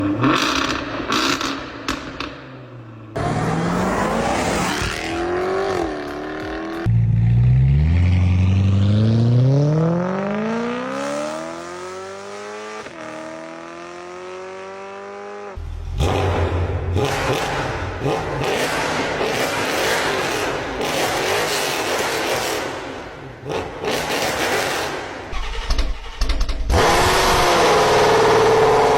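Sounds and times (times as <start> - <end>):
racing car engines accelerating: 3.2 - 22.8, 26.7 - 28.9
engine revving with sharp cracks: 15.9 - 28.9.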